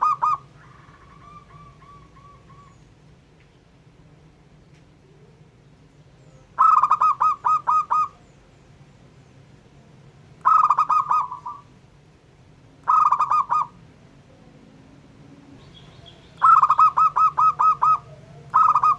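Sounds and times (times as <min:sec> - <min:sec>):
dove cooing: 0:00.0 - 0:02.8, 0:06.6 - 0:08.2, 0:10.4 - 0:11.7, 0:12.8 - 0:13.8, 0:15.6 - 0:18.9.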